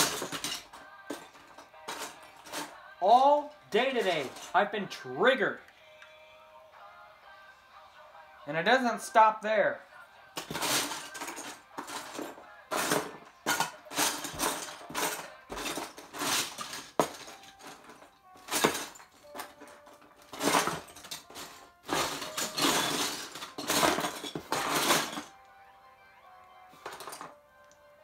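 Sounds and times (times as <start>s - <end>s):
plastic bricks clattering: 0.0s - 2.7s.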